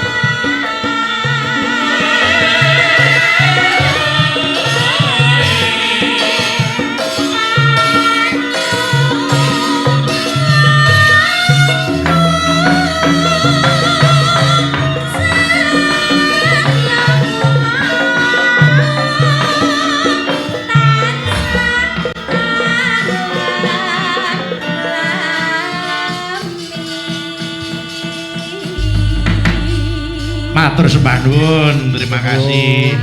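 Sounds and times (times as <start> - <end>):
gamelan music: 0.0 - 25.2, 28.7 - 33.0
woman singing: 0.0 - 33.0
deep held low tone: 28.8 - 33.0
low drum pattern: 28.8 - 33.0.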